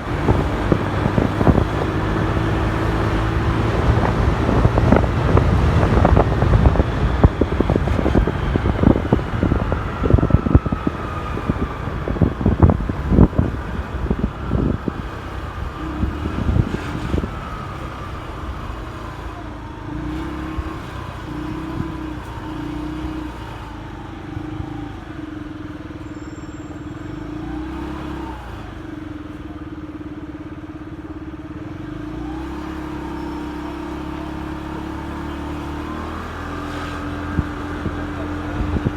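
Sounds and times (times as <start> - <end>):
wind buffeting microphone: 0.0 - 25.0, 36.0 - 38.9
motorcycle engine: 0.0 - 25.6.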